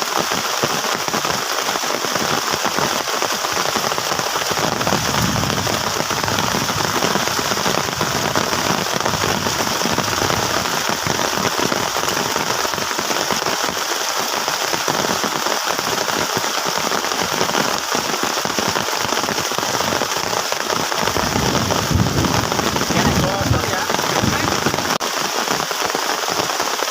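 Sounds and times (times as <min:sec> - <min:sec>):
heavy rain on a plastic tarp: 0:00.0 - 0:26.9.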